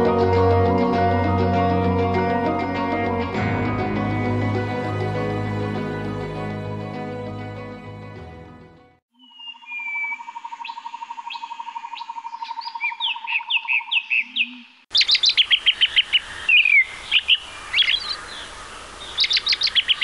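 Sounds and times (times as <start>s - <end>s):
birds chirping and singing: 9.2s - 20.0s.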